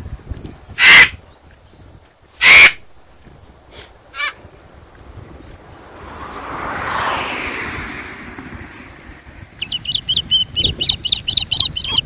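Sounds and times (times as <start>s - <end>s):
broad rushing noise: 2.7s - 12.0s
songbird chirping: 8.8s - 12.0s.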